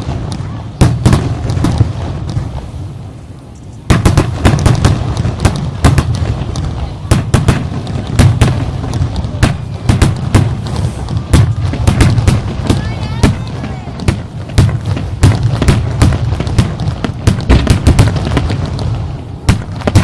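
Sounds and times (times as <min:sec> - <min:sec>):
fireworks bangs: 0:00.0 - 0:20.0
fireworks rumble: 0:00.0 - 0:20.0.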